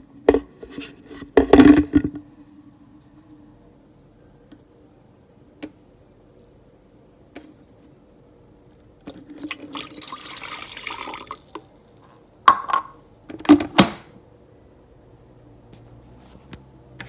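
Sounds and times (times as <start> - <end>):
water running: 9.1 - 13.3.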